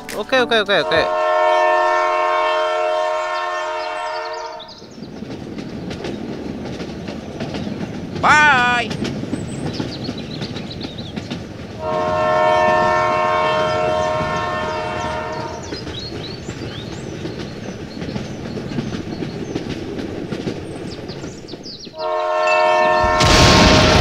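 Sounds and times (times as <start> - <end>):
train horn chord: 0.0 - 4.7, 11.8 - 15.7, 22.0 - 24.0
train rumbling and clacking on rails: 0.0 - 24.0.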